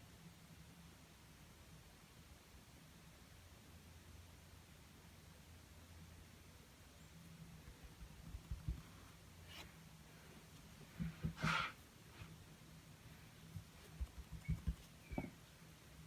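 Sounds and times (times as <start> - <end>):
faint steady hum: 0.0 - 16.0
scratchy brush stroke: 8.7 - 9.8, 11.0 - 12.4
soft low taps: 13.5 - 15.4.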